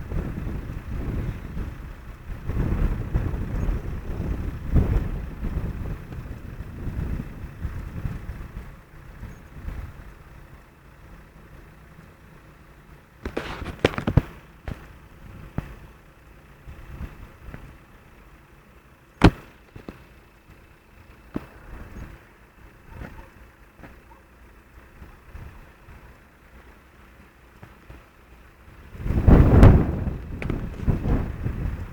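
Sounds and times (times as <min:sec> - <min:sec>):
wind buffeting microphone: 0:00.0 - 0:11.6, 0:13.2 - 0:18.1, 0:27.9 - 0:31.9
sharp cracks: 0:13.2 - 0:15.9, 0:19.2 - 0:21.7.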